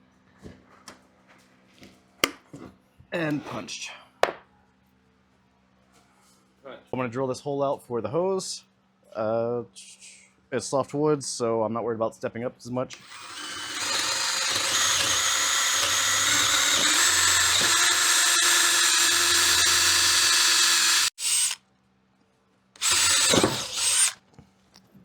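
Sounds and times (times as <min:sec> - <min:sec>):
power drill boring into wood: 0:12.9 - 0:21.6, 0:22.8 - 0:24.2.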